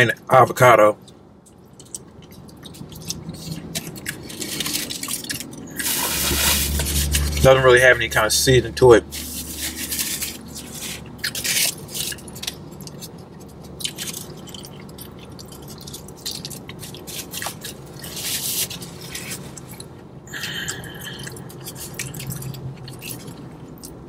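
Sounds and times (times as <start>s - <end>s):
person chewing food: 1.0s - 7.4s, 9.1s - 24.0s
foil wrapper crinkling: 2.7s - 7.5s, 9.1s - 19.8s.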